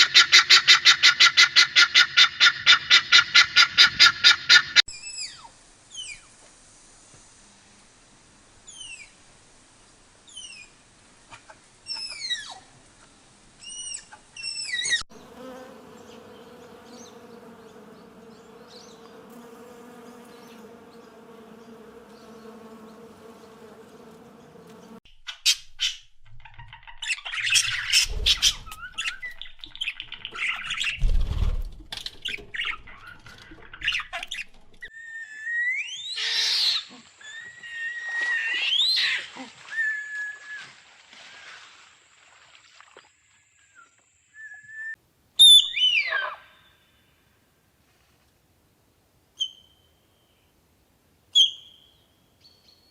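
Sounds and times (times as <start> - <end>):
low thumps: 28.0 - 29.0, 31.0 - 32.0
whistled bird calls: 43.7 - 46.8, 49.4 - 50.4, 51.4 - 52.9.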